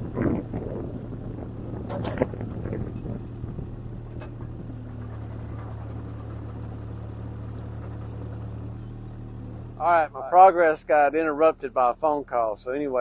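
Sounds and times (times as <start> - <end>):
diesel engine running: 0.0 - 13.0
short cracks and knocks: 1.8 - 2.8.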